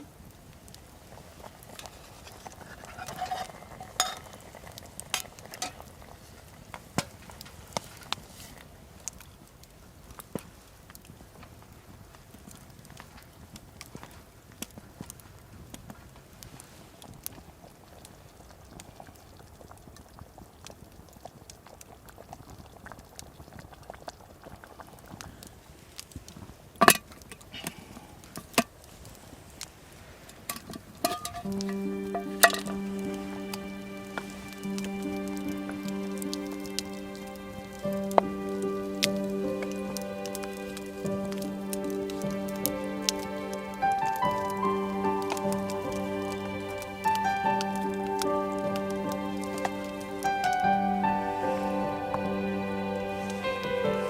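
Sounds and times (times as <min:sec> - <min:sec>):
stew bubbling in a pot: 0:00.0 - 0:50.7
campfire crackling: 0:00.0 - 0:54.0
metal utensil stirring in pot: 0:01.8 - 0:04.3, 0:31.0 - 0:31.5.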